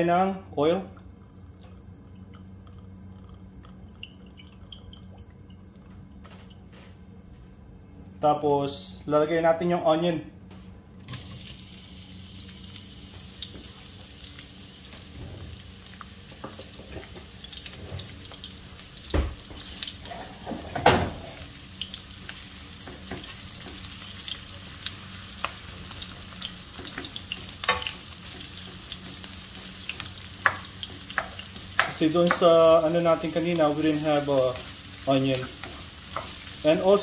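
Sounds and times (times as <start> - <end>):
onion sizzling in oil: 11.0 - 37.0.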